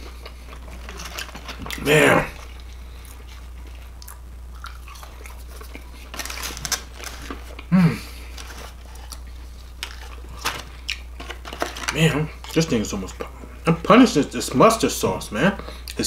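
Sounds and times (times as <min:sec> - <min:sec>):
person chewing and crunching: 0:00.0 - 0:12.7.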